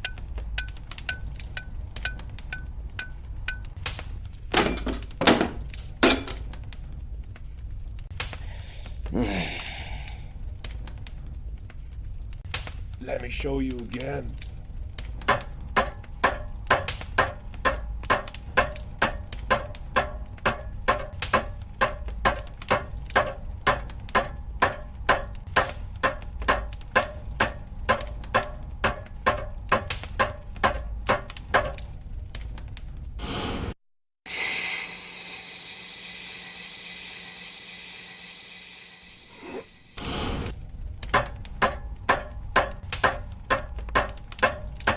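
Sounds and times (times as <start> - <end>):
hammer striking anvil: 0.0 - 3.7, 4.6 - 6.4, 15.3 - 31.8, 41.2 - 44.9
steam hissing: 33.2 - 40.5.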